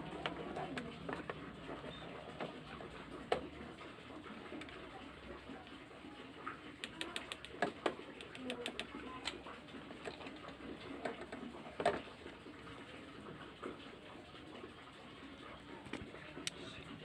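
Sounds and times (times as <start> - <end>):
light clicks and taps: 6.8 - 9.4.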